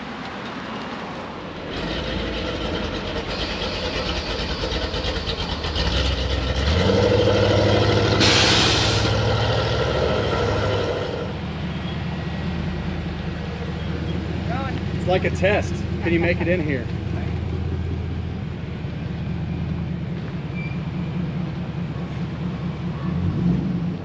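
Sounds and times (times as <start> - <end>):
truck engine running: 1.7 - 23.4
burst of hiss: 8.2 - 9.2.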